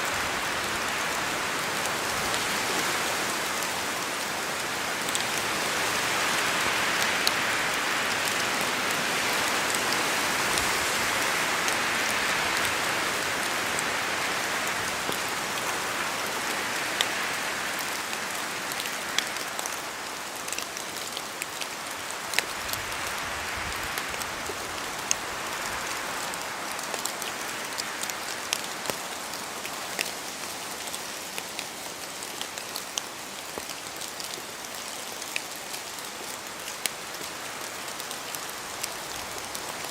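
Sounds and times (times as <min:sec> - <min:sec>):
rain falling through trees: 0:00.0 - 0:39.9
heavy raindrops clicking: 0:27.8 - 0:39.8.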